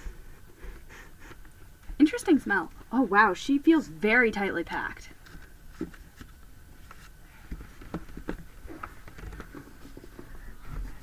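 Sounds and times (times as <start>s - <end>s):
cardboard box taps and rustles: 7.5s - 10.3s.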